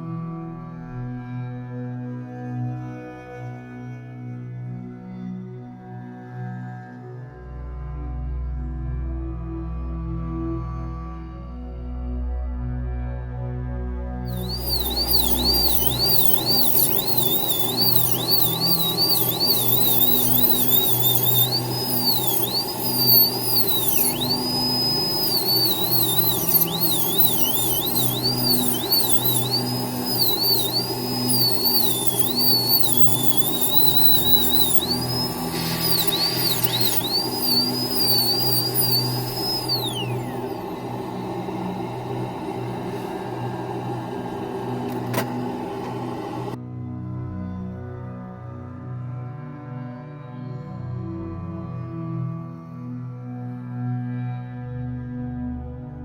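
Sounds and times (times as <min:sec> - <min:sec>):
dental handpiece whining: 0:14.3 - 0:46.6
low hum: 0:14.3 - 0:46.6.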